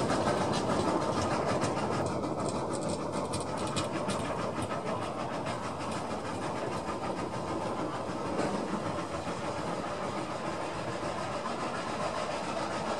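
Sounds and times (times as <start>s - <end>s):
wheels clicking over rail joints: 0.0s - 10.1s
train coaches rumbling: 0.0s - 12.9s.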